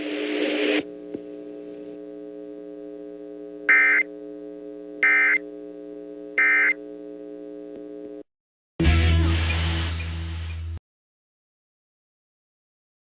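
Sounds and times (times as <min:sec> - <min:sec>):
low multi-tone hum: 0:00.0 - 0:08.2.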